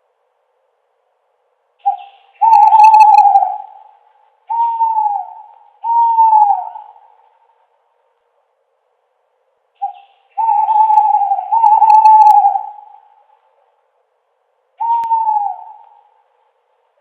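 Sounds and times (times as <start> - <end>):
owl hooting: 1.8 - 7.5, 9.8 - 13.6, 14.8 - 16.4.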